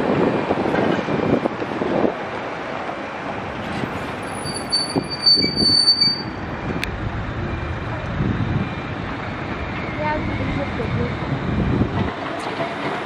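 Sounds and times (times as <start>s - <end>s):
tram rumble: 0.0s - 13.0s
tram wheels squealing on rails: 3.6s - 6.5s, 8.6s - 13.0s.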